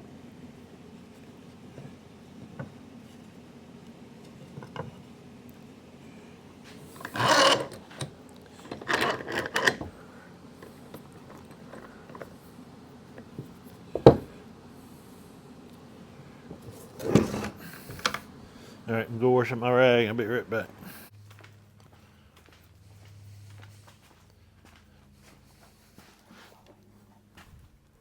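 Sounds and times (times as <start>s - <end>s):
rubbing and scraping on wood: 6.6s - 10.0s, 10.6s - 14.4s.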